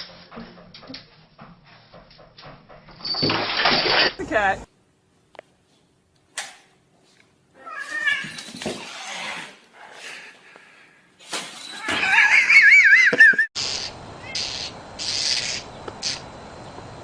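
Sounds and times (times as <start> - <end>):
cat meowing and yowling: 7.6 - 8.4.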